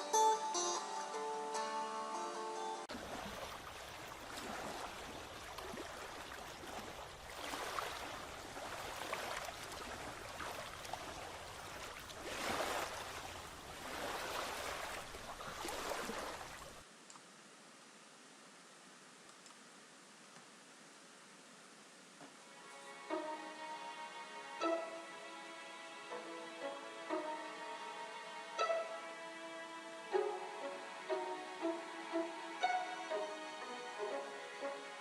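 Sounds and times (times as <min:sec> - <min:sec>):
rushing water: 0:02.9 - 0:16.9, 0:22.3 - 0:35.0
faint hiss: 0:02.9 - 0:35.0.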